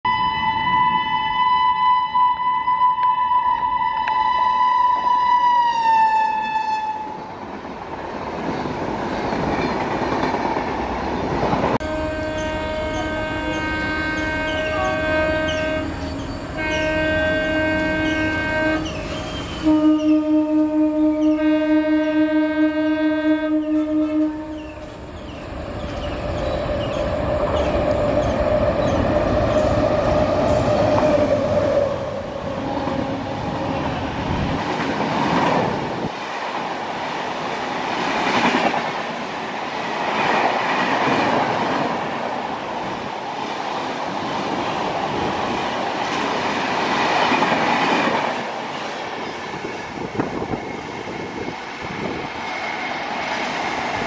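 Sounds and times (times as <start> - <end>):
train horn blasts: 0.1 - 7.3, 11.8 - 24.9.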